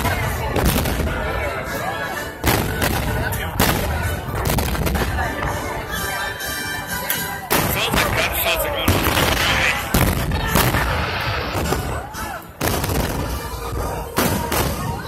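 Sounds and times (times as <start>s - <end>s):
firework booms: 0.0s - 1.4s, 2.4s - 5.5s, 7.5s - 15.0s
music: 0.0s - 15.0s.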